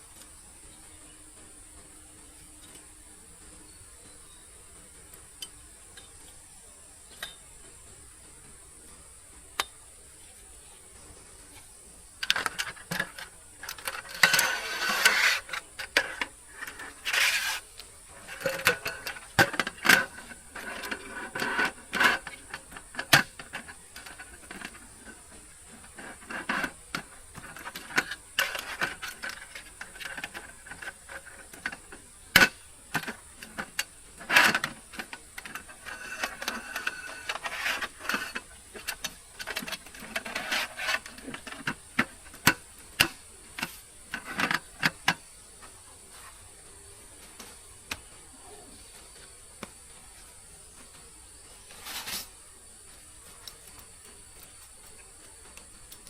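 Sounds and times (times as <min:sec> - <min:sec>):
high insect drone: 0:00.0 - 0:56.0
objects clicking and clattering: 0:11.0 - 0:45.8.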